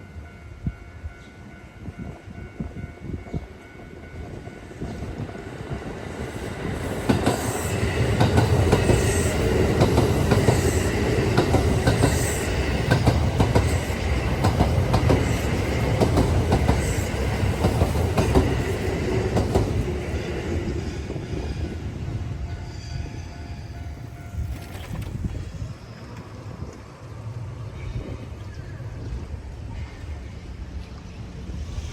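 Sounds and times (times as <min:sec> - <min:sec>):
electric train passing: 0:00.0 - 0:31.9
wheels clattering over rail joints: 0:24.0 - 0:27.0.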